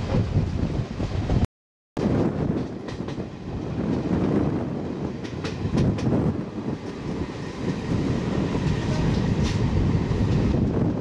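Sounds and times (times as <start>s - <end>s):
train coach rumble: 2.0s - 11.0s
wheels clicking on rail joints: 5.0s - 11.0s.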